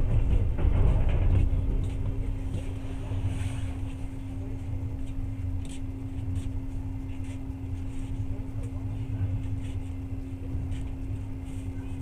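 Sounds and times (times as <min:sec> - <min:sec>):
train rumbling inside carriage: 0:00.0 - 0:12.0.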